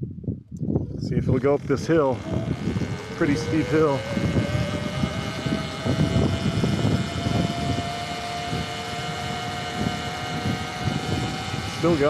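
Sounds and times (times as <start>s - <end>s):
uneven low rumble: 0.0s - 12.0s
electric motor whining: 1.2s - 12.0s.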